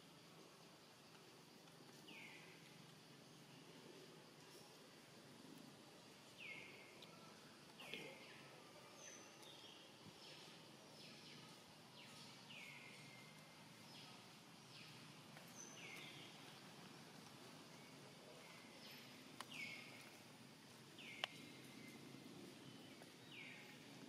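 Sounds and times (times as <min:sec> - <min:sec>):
low background noise: 0:00.0 - 0:24.0
bird chirping: 0:06.3 - 0:07.2, 0:07.8 - 0:24.0.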